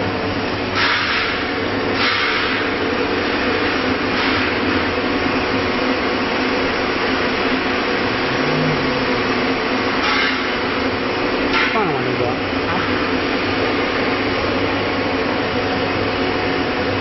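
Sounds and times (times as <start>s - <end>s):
cnc router hum: 5.5s - 17.0s.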